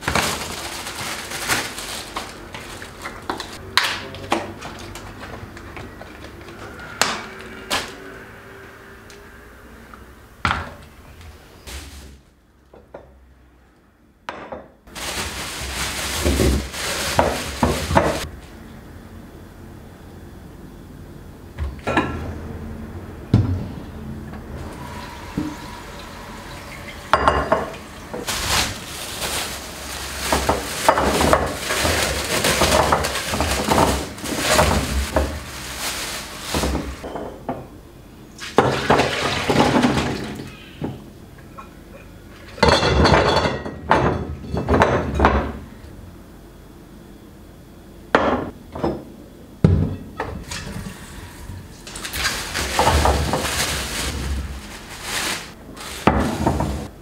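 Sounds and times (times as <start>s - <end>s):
dishes and glass clinking: 26.5s - 28.3s, 41.6s - 45.6s.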